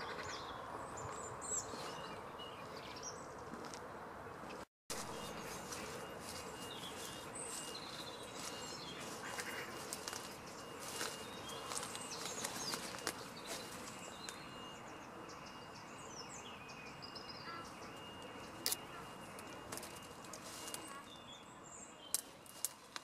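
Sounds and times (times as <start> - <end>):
small birds chirping: 0.0 - 3.4, 4.4 - 23.0.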